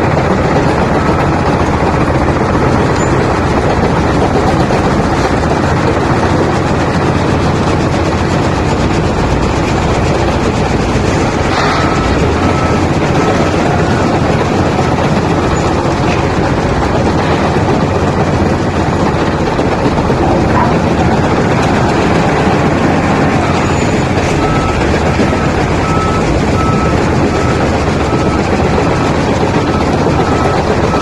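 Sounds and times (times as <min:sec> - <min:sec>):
reversing alarm beeping: 0:00.0 - 0:03.2, 0:11.5 - 0:15.9, 0:23.2 - 0:31.0
wheel loader diesel engine: 0:00.0 - 0:31.0.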